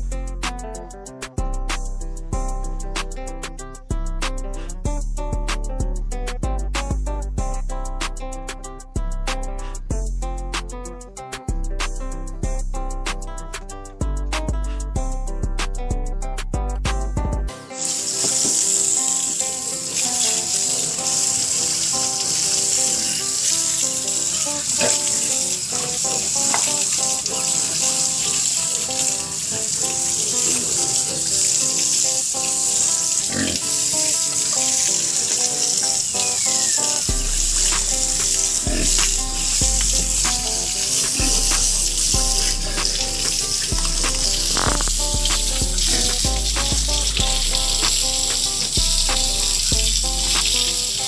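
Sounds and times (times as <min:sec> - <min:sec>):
background music: 0:00.0 - 0:51.0
steady hiss: 0:17.6 - 0:51.0.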